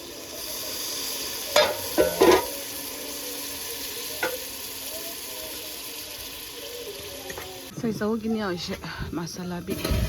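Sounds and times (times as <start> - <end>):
sauce sizzling in hot oil: 0.0 - 8.6.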